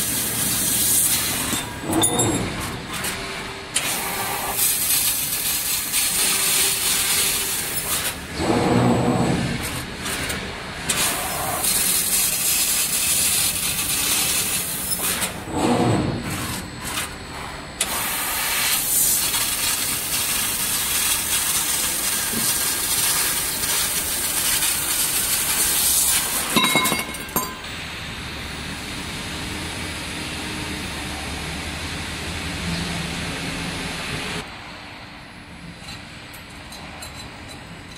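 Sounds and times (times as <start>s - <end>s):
laser cutter hissing: 3.8s - 8.2s, 10.9s - 15.3s, 16.2s - 26.5s.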